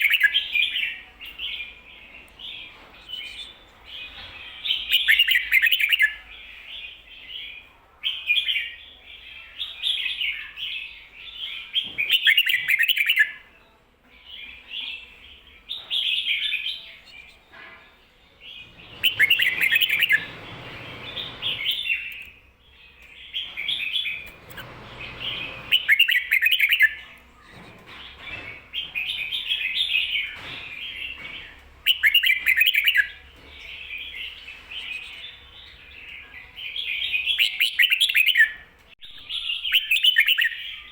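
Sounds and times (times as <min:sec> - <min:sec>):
bird warbling song: 0:00.0 - 0:13.4, 0:14.3 - 0:40.9.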